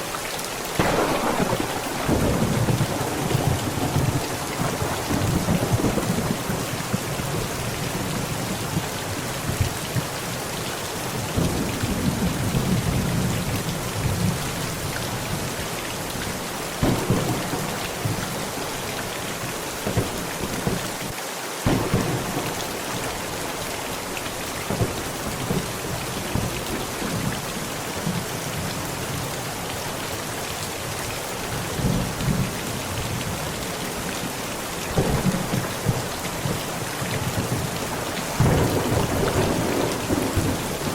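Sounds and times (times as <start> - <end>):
heavy rain on a tent: 0.0 - 40.9
thunder rumbling: 0.8 - 9.7, 16.8 - 21.0, 21.6 - 23.6, 34.9 - 40.9
thunder claps: 0.8 - 10.0, 16.8 - 23.3, 34.9 - 40.9.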